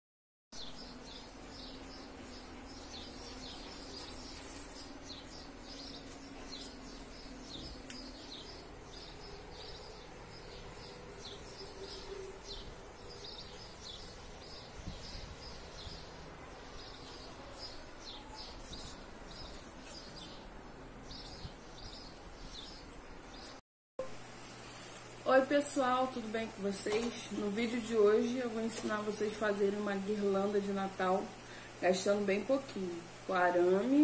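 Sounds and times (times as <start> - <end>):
bird chirping: 0.6 - 23.6.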